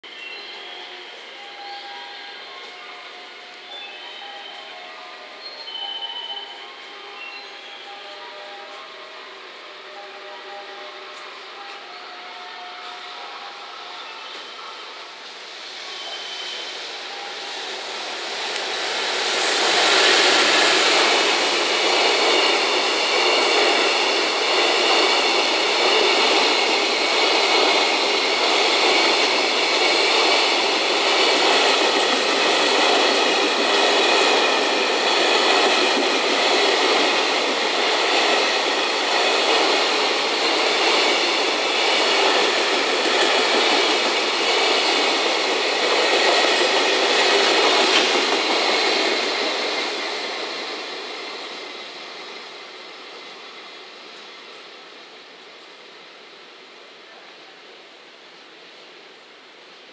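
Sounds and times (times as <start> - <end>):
freight train passing: 0.0 - 59.9.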